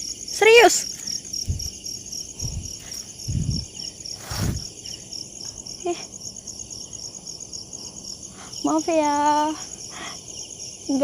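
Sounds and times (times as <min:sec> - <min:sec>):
crickets chirping: 0:00.0 - 0:11.0
soft low thumps: 0:01.4 - 0:01.8, 0:02.4 - 0:04.7.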